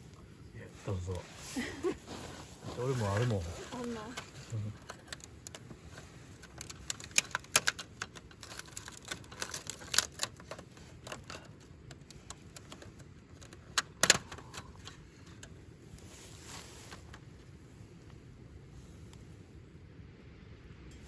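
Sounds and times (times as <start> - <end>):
sharp clicks and light knocks: 2.8 - 15.6.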